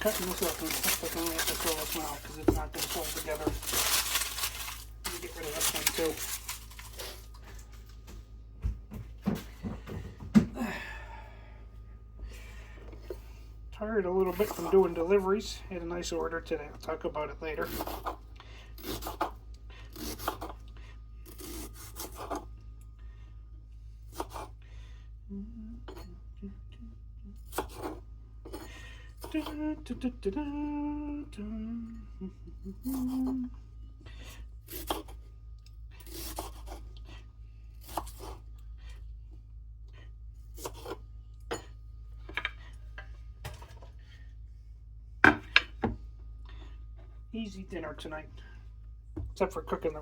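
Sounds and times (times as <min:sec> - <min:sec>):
knife cutting vegetables on board: 0:18.8 - 0:20.6, 0:24.1 - 0:24.5, 0:40.5 - 0:41.0.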